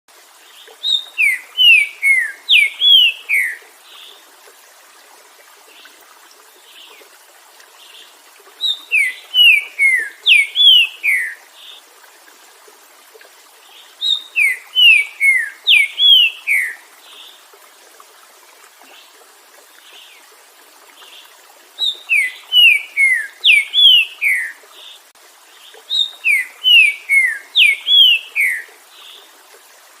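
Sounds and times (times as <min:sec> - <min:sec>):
bird whistling song: 0:00.8 - 0:03.6, 0:08.6 - 0:11.4, 0:14.0 - 0:16.8, 0:21.8 - 0:24.6, 0:25.9 - 0:28.7.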